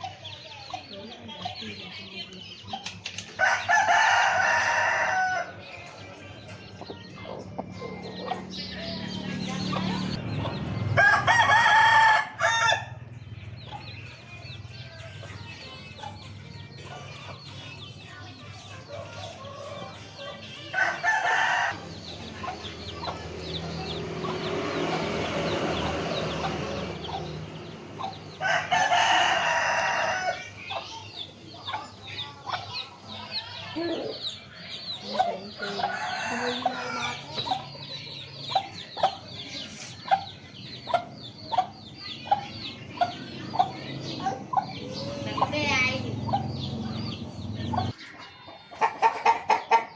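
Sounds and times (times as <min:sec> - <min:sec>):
hens clucking: 0:00.0 - 0:12.7, 0:13.4 - 0:49.9
chicks cheeping: 0:00.0 - 0:49.9
rooster crowing: 0:03.4 - 0:05.6, 0:11.0 - 0:13.0, 0:20.8 - 0:21.8, 0:28.4 - 0:30.5, 0:35.6 - 0:37.4.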